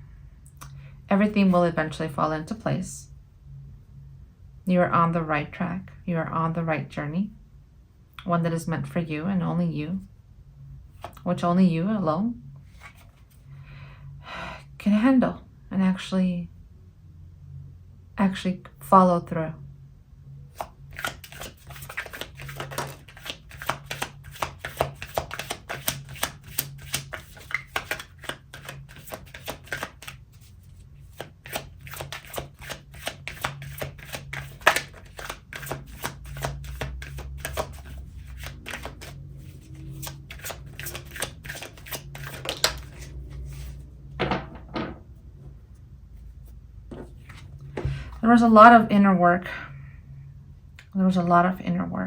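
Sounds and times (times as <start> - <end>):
cards being shuffled: 12.6 - 13.4, 20.5 - 43.8, 46.4 - 48.0.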